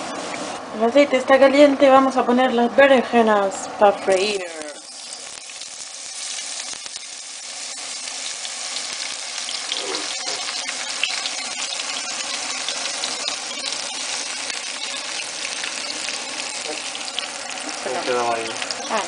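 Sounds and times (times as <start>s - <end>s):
aubergine sizzling in hot oil: 3.5s - 19.0s
oil crackles and pops: 4.1s - 19.0s.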